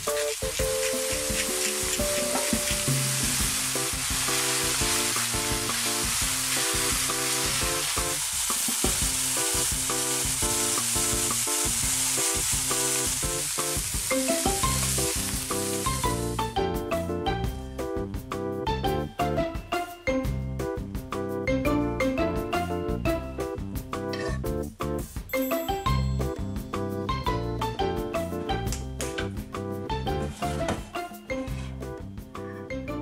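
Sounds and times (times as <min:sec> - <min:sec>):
food sizzling in a pan: 0:00.0 - 0:16.6
background music: 0:00.0 - 0:33.0.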